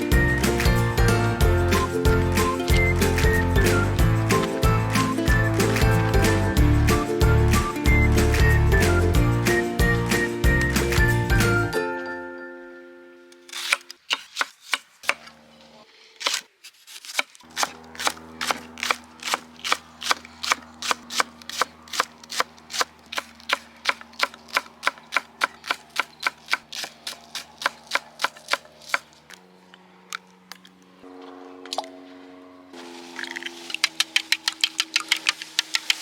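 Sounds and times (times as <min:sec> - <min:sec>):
soft background music: 0:00.0 - 0:13.4.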